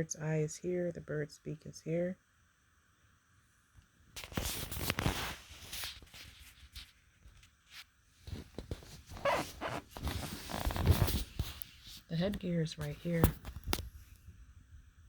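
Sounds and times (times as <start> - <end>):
rustling and scraping with clicks: 4.2 - 14.3.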